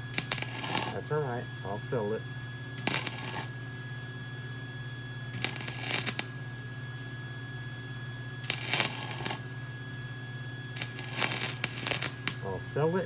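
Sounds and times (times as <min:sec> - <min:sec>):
welding arc crackle: 0:00.0 - 0:01.1, 0:02.8 - 0:03.8, 0:05.4 - 0:07.2, 0:08.4 - 0:09.7, 0:10.8 - 0:12.7
welder hum: 0:00.0 - 0:09.9, 0:10.7 - 0:13.0.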